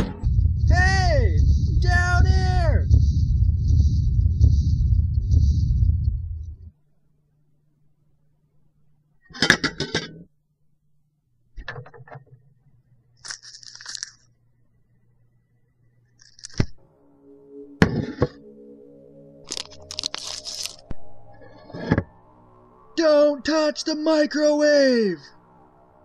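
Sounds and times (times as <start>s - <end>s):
musical drone: 0.0s - 6.7s, 16.8s - 26.0s.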